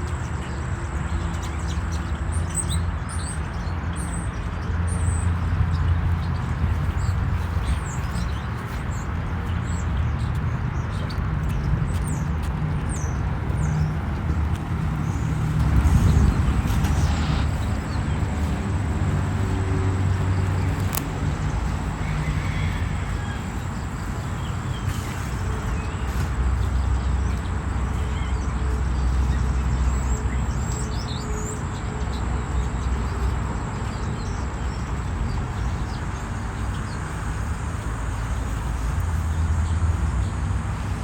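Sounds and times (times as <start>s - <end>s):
low motor rumble: 5.0s - 24.7s.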